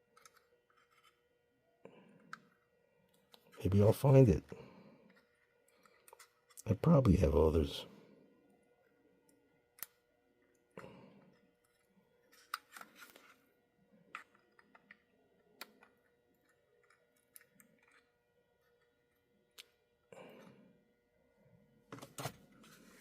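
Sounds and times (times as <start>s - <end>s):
small parts and tools clicking: 0.0s - 1.3s, 5.1s - 6.7s, 14.0s - 19.8s.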